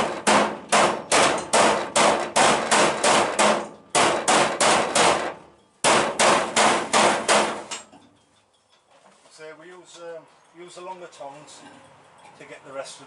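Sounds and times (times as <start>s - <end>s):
hammer striking sheet steel: 0.0s - 7.9s.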